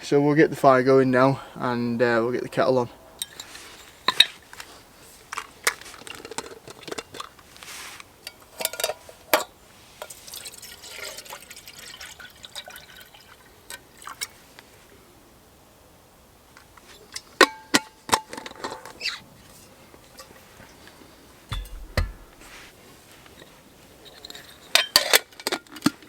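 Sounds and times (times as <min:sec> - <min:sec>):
water pouring into kettle: 0:10.3 - 0:14.2
metal clinks and knocks: 0:21.5 - 0:22.6.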